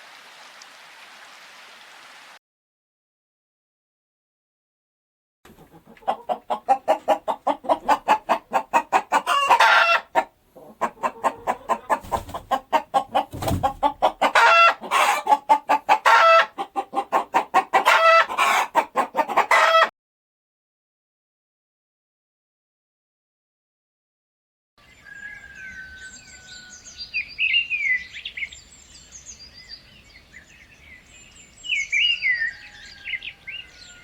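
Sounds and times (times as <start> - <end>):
hens clucking: 5.5 - 19.9
hen drawn-out calls: 5.6 - 19.9.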